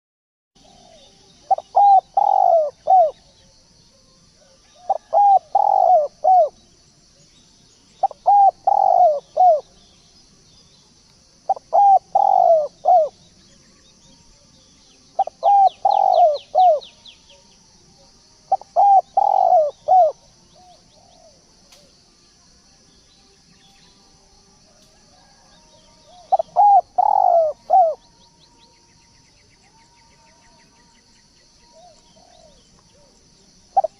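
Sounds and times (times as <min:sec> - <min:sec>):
dove cooing: 0:00.6 - 0:03.6, 0:04.4 - 0:06.6, 0:08.0 - 0:09.8, 0:11.5 - 0:13.2, 0:15.2 - 0:17.0, 0:18.0 - 0:21.5, 0:24.7 - 0:28.1, 0:31.7 - 0:33.9.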